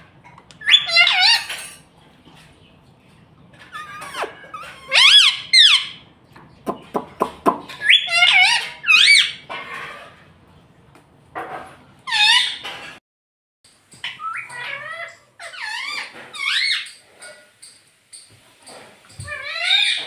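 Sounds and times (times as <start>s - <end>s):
parakeet squawks and chirps: 0.6s - 1.7s, 3.6s - 6.1s, 7.6s - 10.2s, 12.1s - 12.9s, 14.0s - 17.6s, 18.7s - 20.0s.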